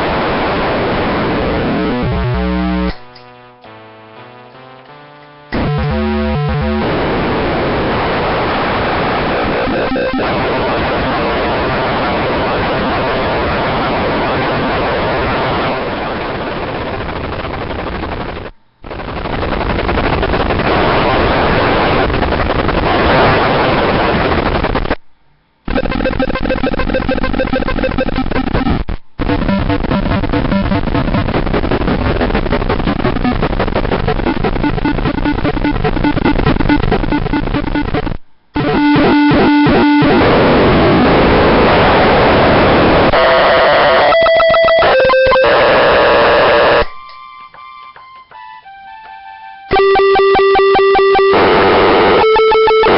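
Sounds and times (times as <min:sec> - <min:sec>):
distorted fuzz pedal tone: 0:00.0 - 0:24.9, 0:25.7 - 0:52.9
stuttering chopped tone: 0:01.6 - 0:03.8, 0:05.5 - 0:07.8, 0:09.2 - 0:11.2, 0:25.7 - 0:52.9.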